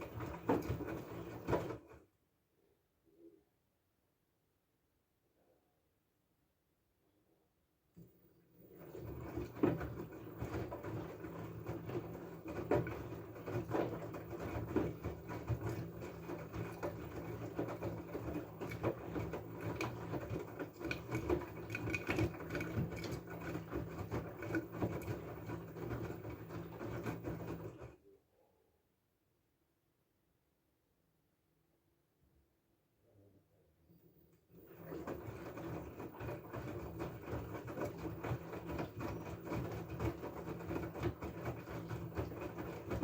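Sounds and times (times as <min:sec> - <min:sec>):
washing machine motor hum: 0:00.0 - 0:02.0, 0:08.0 - 0:28.0, 0:34.0 - 0:43.0.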